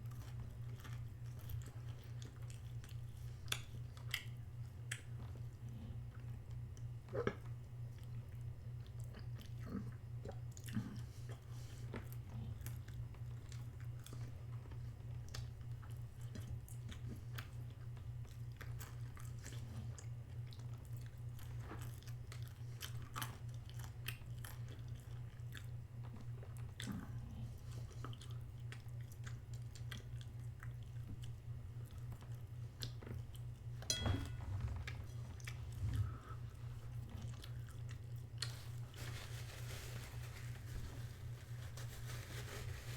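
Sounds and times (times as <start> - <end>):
person chewing crunchy food: 0.0 - 6.4, 7.1 - 33.6, 35.2 - 38.8
low hum: 33.8 - 37.9.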